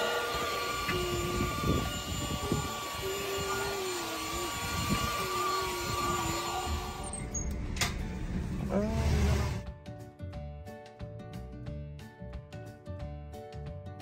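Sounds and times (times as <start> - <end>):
vacuum cleaner running: 0.0 - 9.6.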